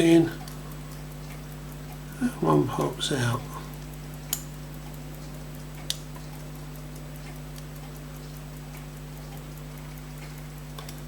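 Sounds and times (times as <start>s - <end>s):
clock ticking: 0.0s - 11.0s
electrical hum: 0.0s - 11.0s
sharp click: 3.8s - 5.2s.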